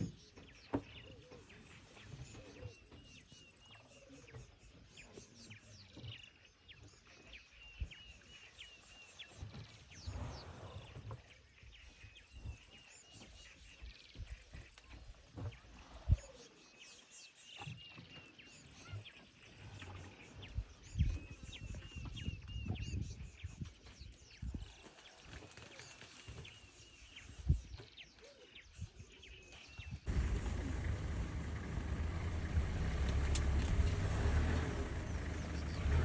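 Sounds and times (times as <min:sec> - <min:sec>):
birds chirping: 0:29.5 - 0:36.0.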